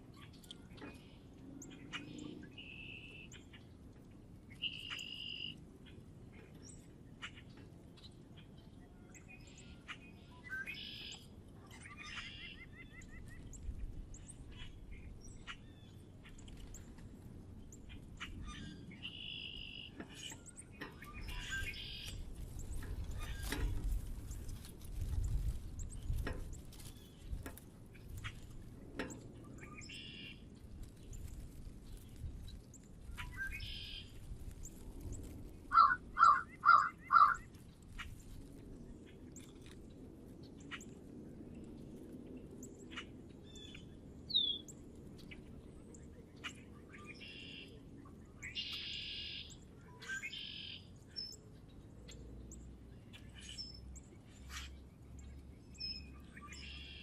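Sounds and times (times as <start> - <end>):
small birds chirping: 4.5 - 41.0, 42.6 - 57.0
loud calls of larger bird: 35.7 - 37.5.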